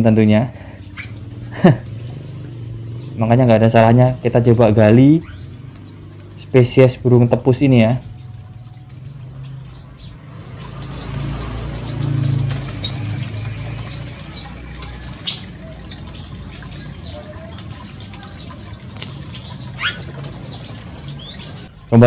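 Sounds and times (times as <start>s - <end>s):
low steady hum: 0.0s - 10.2s
small birds chirping: 0.0s - 22.0s.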